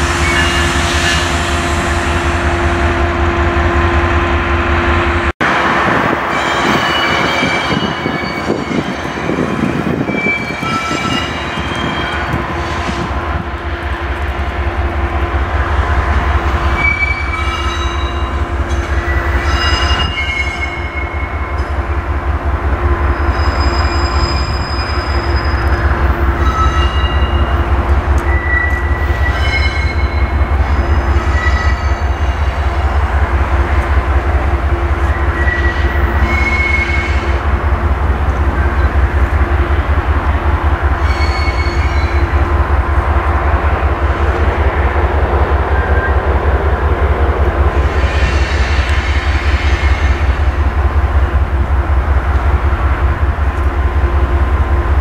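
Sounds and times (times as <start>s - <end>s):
train rumbling: 0.0s - 55.0s
wheel flanges squealing: 6.3s - 13.2s, 16.6s - 21.6s, 23.1s - 33.1s.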